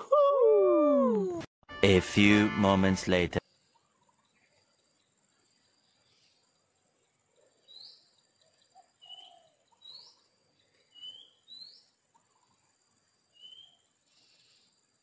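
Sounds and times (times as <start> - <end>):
bird chirping: 3.5 - 14.9.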